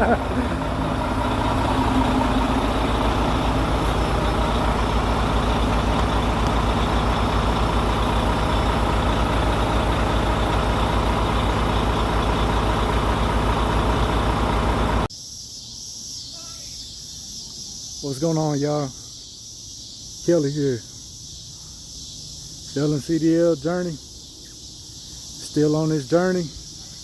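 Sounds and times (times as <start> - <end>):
diesel truck engine idling: 0.0 - 15.1.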